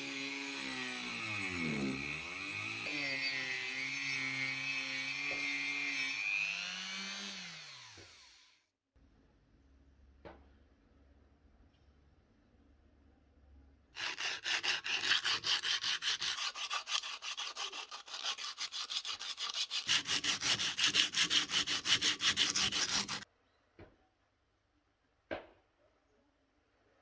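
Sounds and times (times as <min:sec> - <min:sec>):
hand tool scraping: 0:14.0 - 0:23.3.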